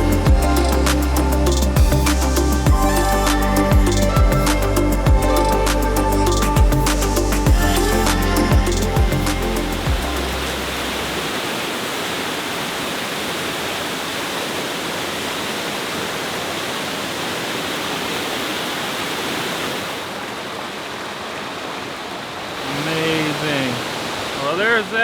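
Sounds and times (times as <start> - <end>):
electronic music with bass beat: 0.0 - 11.0
waterfall pouring: 9.1 - 25.0.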